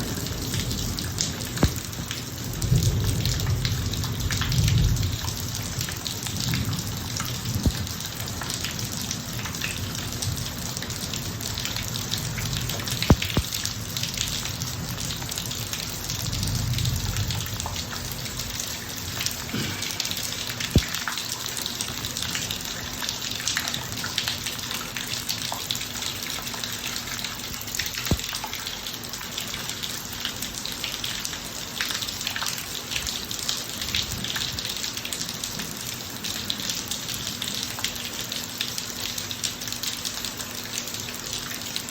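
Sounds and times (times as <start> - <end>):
rain on pavement: 0.0 - 41.9
sharp drips: 0.0 - 41.9.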